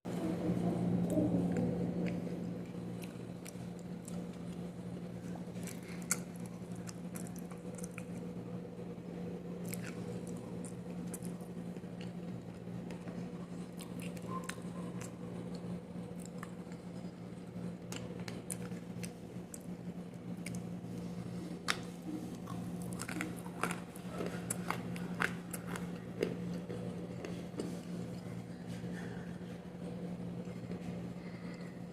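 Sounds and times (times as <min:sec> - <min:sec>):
steady low hum: 0:00.1 - 0:31.9
chewing clay crunches: 0:01.0 - 0:08.4, 0:09.5 - 0:29.4.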